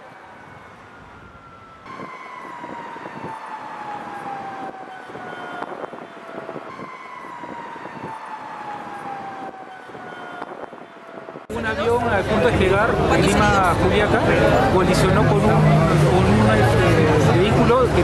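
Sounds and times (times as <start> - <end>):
emergency vehicle siren: 0.0 - 11.9, 12.9 - 18.0
street noise: 0.0 - 18.0.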